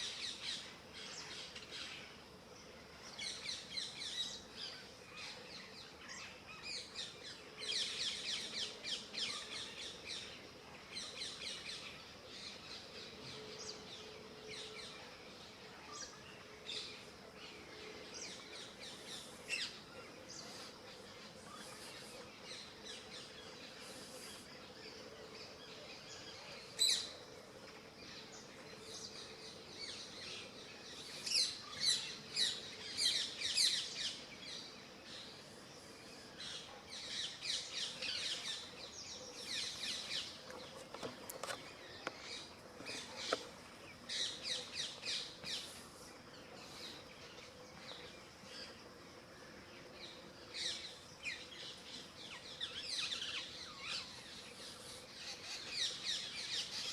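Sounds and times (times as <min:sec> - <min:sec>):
small birds chirping: 0:14.8 - 0:56.9.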